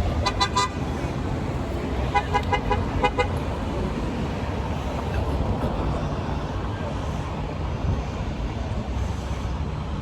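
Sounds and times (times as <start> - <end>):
traffic rumble: 0.0 - 10.0
car horn beeps: 0.2 - 0.8, 2.1 - 3.4.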